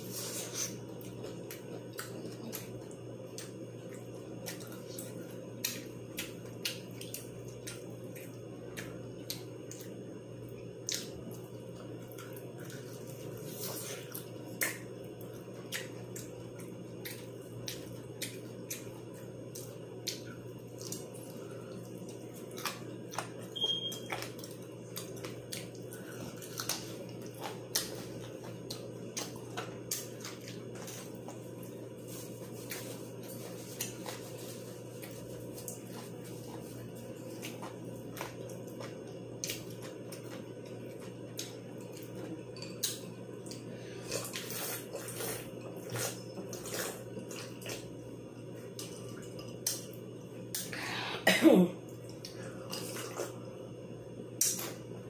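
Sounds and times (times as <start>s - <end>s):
steady low hum: 0.0s - 55.0s
chewing mouth clicks and smacks: 0.6s - 10.0s, 10.8s - 31.4s, 37.3s - 47.9s.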